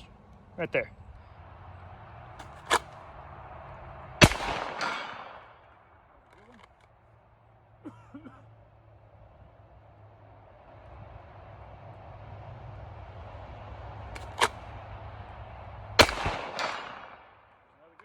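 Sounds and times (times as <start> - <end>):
pistol shot: 4.2 - 5.8, 16.0 - 17.5
sharp click: 14.2 - 14.6.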